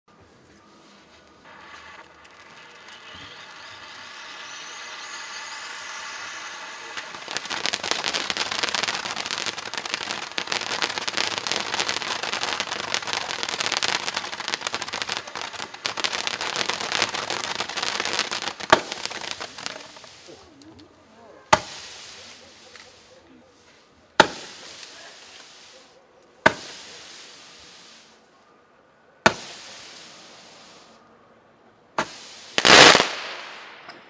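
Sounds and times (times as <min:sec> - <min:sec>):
firework stars crackling: 0:00.3 - 0:28.4, 0:29.2 - 0:31.1, 0:32.0 - 0:34.0
firework fountain hissing: 0:00.8 - 0:20.8, 0:21.5 - 0:28.3, 0:29.3 - 0:31.1, 0:32.0 - 0:33.9
loud sharp crack: 0:01.7 - 0:20.3, 0:24.2 - 0:25.0, 0:26.4 - 0:27.1, 0:29.2 - 0:29.8, 0:32.0 - 0:34.0.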